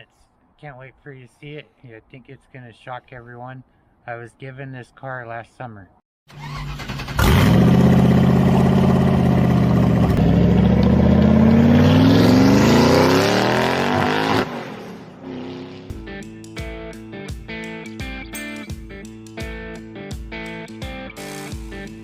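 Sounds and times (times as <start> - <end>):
car engine at full throttle: 6.8 - 16.0.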